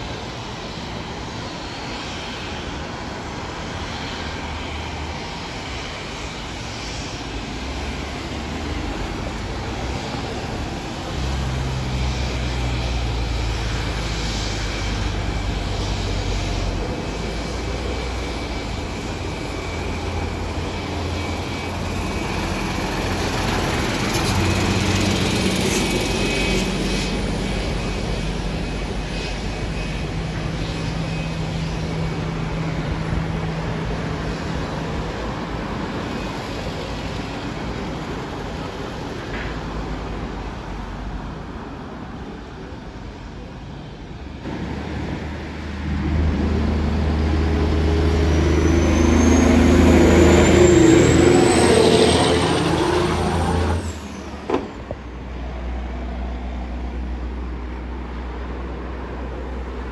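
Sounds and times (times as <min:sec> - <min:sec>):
high whine rising in pitch: 0:44.4 - 0:54.6
louder engine sound: 0:44.4 - 0:54.8
engine humming: 0:44.4 - 0:55.6.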